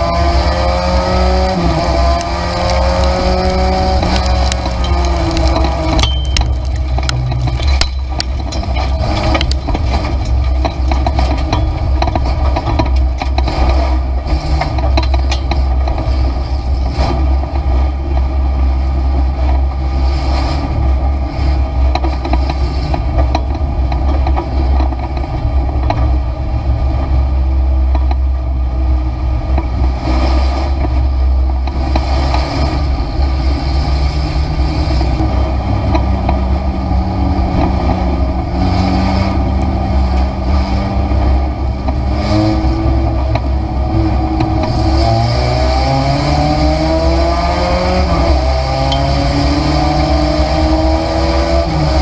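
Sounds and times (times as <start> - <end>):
race car engine running: 0.0 - 52.0.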